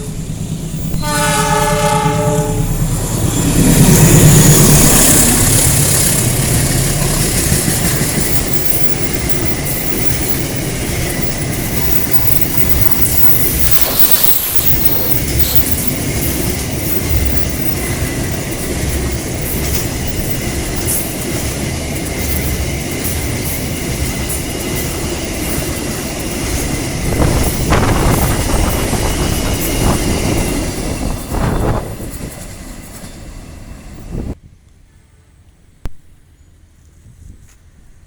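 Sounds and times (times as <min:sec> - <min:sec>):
train wheels rumbling and clacking: 0:00.0 - 0:34.4
high wheel squeal: 0:07.9 - 0:21.2.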